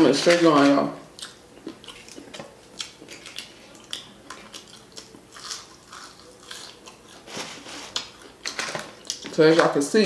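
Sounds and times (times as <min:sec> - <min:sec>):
wet chewing and lip-smacking: 0:01.2 - 0:07.2.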